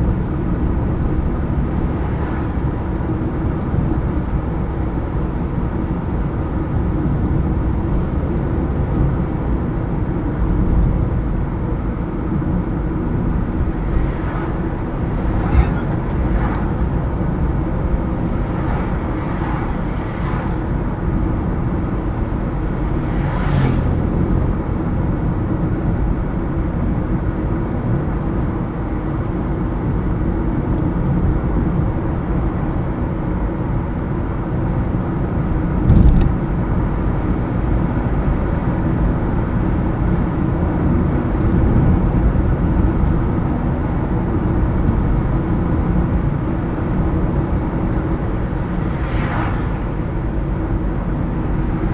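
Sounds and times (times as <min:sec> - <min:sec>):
car driving on road: 0:00.0 - 0:51.9
short thump: 0:35.9 - 0:36.4.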